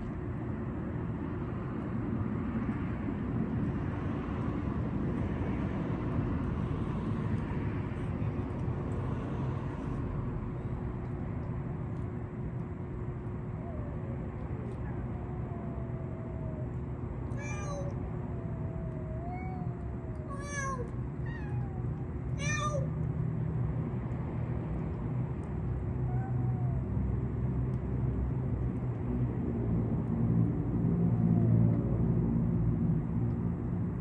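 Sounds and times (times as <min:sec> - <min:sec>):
steady low rumble: 0:00.0 - 0:34.0
cats meowing: 0:13.2 - 0:23.1, 0:25.8 - 0:27.1.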